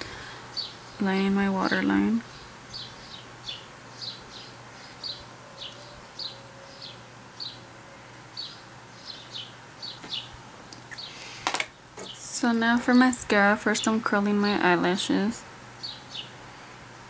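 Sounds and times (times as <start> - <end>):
faint steady hum: 0.0 - 17.0
small bird chirping: 0.5 - 7.6, 8.3 - 11.2, 15.8 - 16.4.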